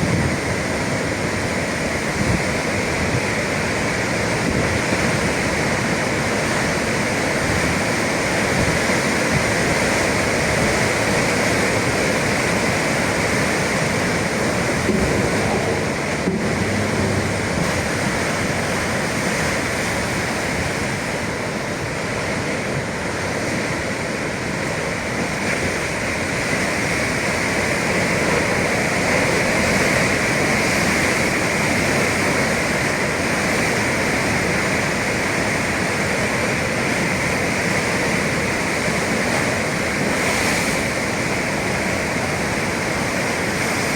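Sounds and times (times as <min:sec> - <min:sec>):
sea waves breaking: 0:00.0 - 0:43.9.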